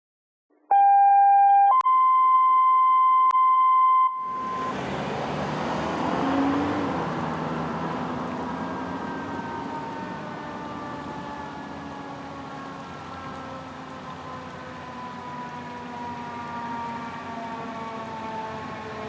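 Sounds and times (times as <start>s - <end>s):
faint wavering siren: 4.1s - 19.0s
fire engine motor rumble: 4.2s - 19.0s
road noise: 4.2s - 19.0s.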